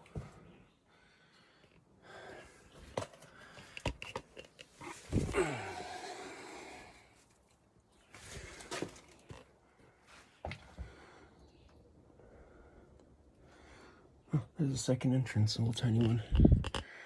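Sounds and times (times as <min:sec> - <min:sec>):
person grunting: 0:05.2 - 0:06.9.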